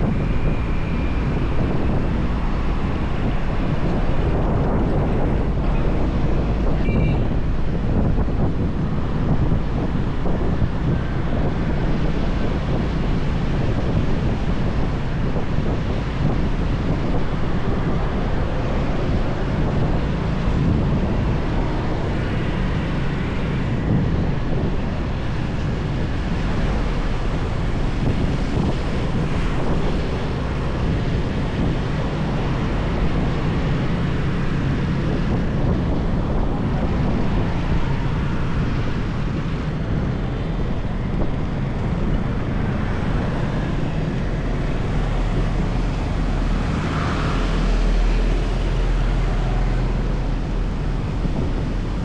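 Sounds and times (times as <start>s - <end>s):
road noise: 0.0s - 52.0s
wind rush on microphone: 0.0s - 52.0s.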